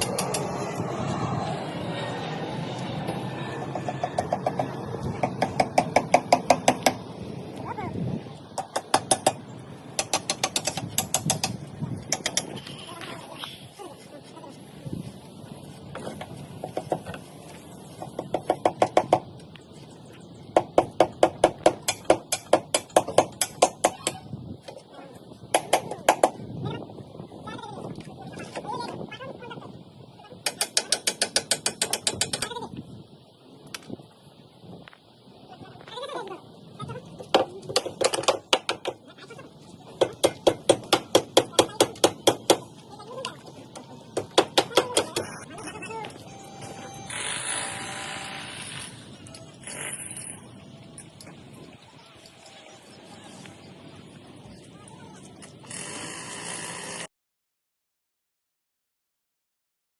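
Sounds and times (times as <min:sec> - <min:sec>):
hammer striking wood: 0:03.7 - 0:07.0, 0:08.6 - 0:09.4, 0:10.0 - 0:12.5, 0:20.6 - 0:24.1, 0:30.5 - 0:32.4, 0:37.3 - 0:39.0, 0:40.0 - 0:42.7, 0:44.2 - 0:45.2
hammer driving nails into timber: 0:10.0 - 0:12.5, 0:30.5 - 0:32.4.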